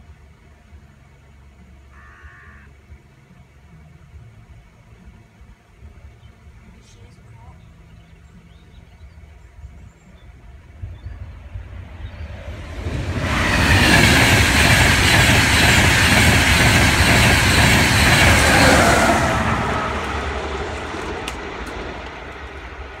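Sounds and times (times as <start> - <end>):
train passing at speed: 10.4 - 23.0.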